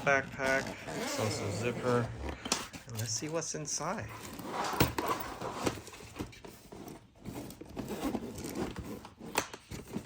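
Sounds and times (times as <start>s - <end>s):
backpack zipper opening: 0.0s - 2.3s.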